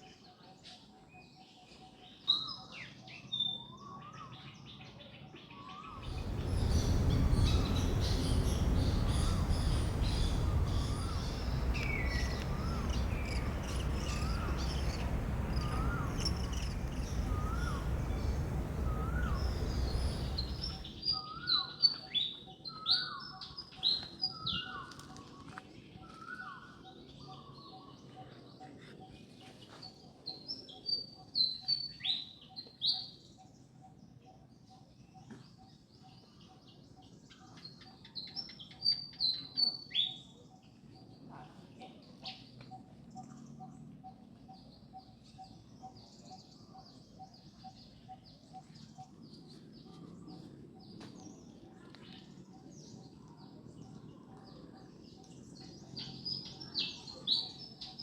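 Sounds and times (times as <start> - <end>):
loud low rumble: 6.0 - 20.9
short rising bird call: 6.0 - 20.9
birds chirping and calling: 6.0 - 21.0.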